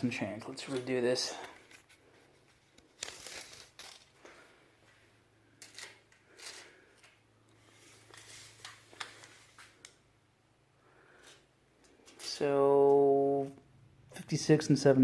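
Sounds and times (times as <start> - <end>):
tape measure scraping and rustling: 1.7 - 4.2, 5.6 - 9.8.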